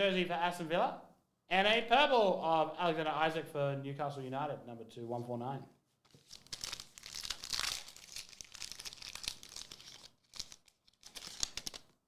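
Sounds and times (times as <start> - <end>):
foil wrapper tearing and crinkling: 6.1 - 11.9.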